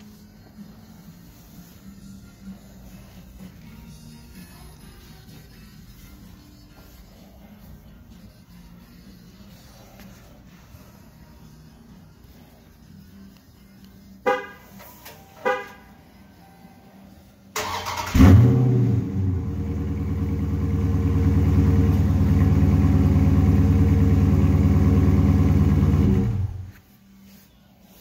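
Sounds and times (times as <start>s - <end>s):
car engine starting and idling: 17.5s - 26.8s.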